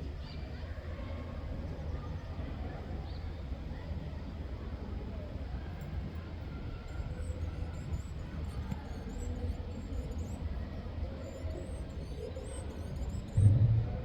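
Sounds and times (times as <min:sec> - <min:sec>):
distant traffic rumble: 0:13.2 - 0:14.0
loud low thump: 0:13.4 - 0:14.0.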